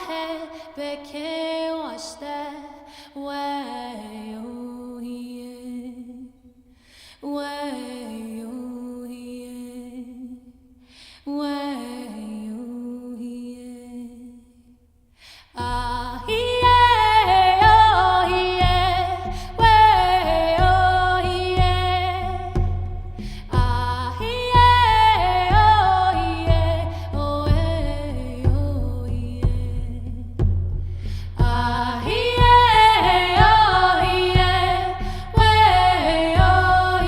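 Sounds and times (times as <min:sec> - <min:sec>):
person singing: 0:15.6 - 0:22.8, 0:23.4 - 0:30.1, 0:31.4 - 0:37.0
steady drumbeat: 0:15.6 - 0:37.0.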